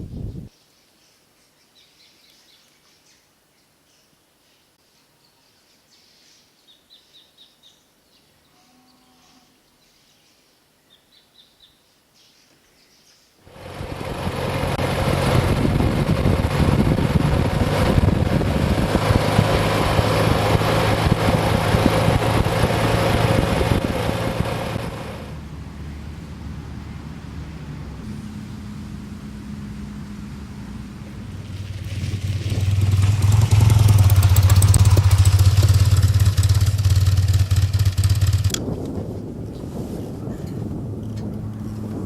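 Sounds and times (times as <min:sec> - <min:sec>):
wind rush: 0:00.0 - 0:00.5, 0:13.6 - 0:25.4, 0:27.5 - 0:36.8, 0:37.6 - 0:42.0
motorcycle engine drone: 0:13.5 - 0:39.6, 0:40.2 - 0:42.0.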